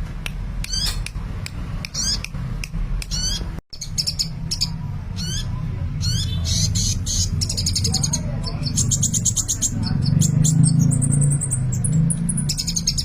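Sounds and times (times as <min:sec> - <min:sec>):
bird twittering chirps: 0:01.9 - 0:02.3, 0:03.0 - 0:13.0.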